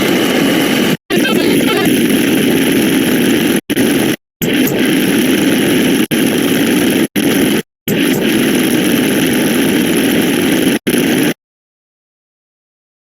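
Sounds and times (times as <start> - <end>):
dense mash of sound effects: 1.1 - 2.4.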